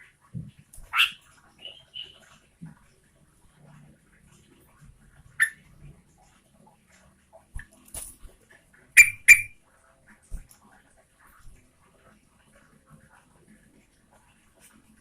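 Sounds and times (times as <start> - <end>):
bird calling sharply: 9.0 - 9.6.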